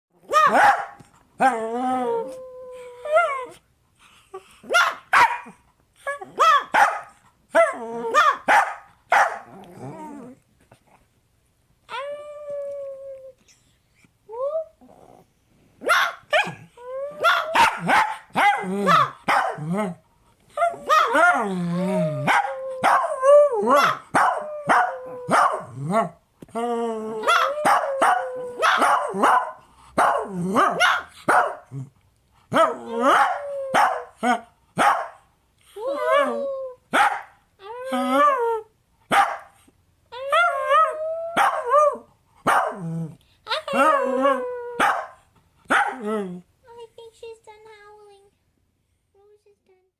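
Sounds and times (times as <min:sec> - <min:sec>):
dog barking: 0:00.3 - 0:01.0, 0:04.7 - 0:05.6, 0:06.4 - 0:07.2, 0:08.2 - 0:09.5, 0:15.8 - 0:16.6, 0:17.2 - 0:19.6, 0:23.8 - 0:25.7, 0:27.3 - 0:31.7, 0:32.6 - 0:34.1, 0:34.8 - 0:35.2, 0:36.9 - 0:37.4, 0:39.1 - 0:39.5, 0:41.4 - 0:41.7, 0:42.5 - 0:42.8, 0:44.8 - 0:46.0.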